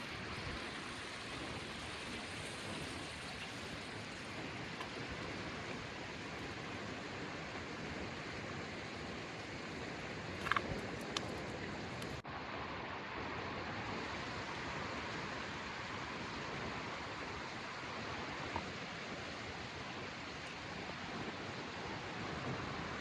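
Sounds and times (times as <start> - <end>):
rushing water or wind: 0.0 - 23.0.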